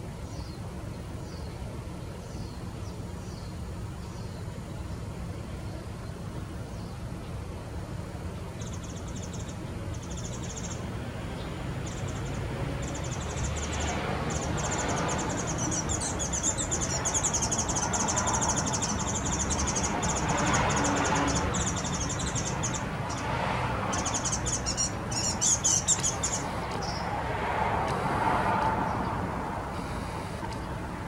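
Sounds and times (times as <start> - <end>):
high-pitched bird trills: 23.9 - 27.0.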